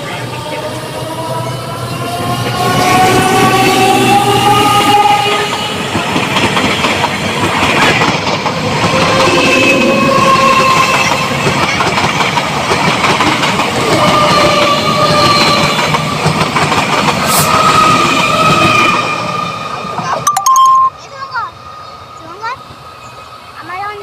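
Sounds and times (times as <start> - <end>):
train wheels on track: 0.0 - 24.0
brief high-pitched tones: 20.2 - 21.1.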